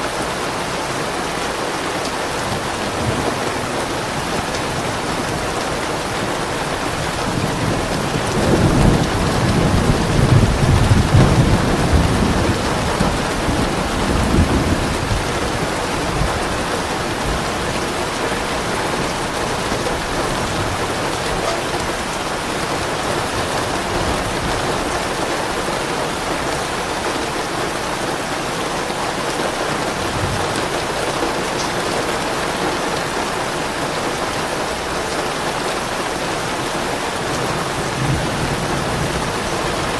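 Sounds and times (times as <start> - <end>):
steady rain falling: 0.0 - 39.9
thunder rumbling: 2.4 - 28.6, 36.9 - 39.9.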